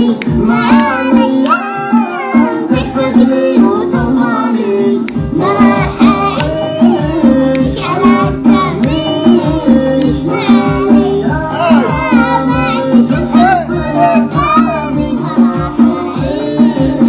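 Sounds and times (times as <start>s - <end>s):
person singing melismatic vocals: 0.0s - 17.0s
rhythmic beat and instruments: 0.0s - 17.0s.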